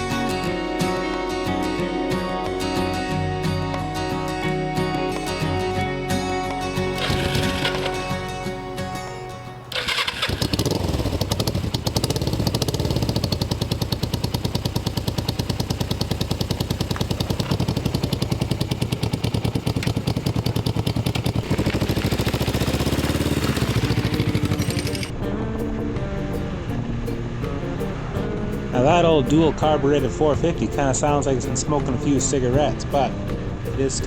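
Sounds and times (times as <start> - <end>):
music: 0.0 - 11.6, 23.4 - 34.0
motorcycle engine idling: 6.8 - 25.2.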